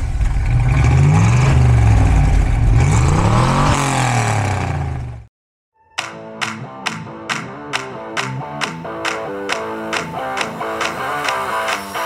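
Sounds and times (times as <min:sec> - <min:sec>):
car engine running and revving: 0:00.0 - 0:05.3.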